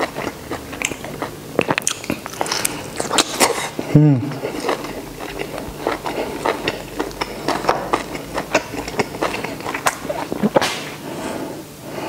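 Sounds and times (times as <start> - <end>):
chewing with wet mouth clicks: 0.0 - 10.9.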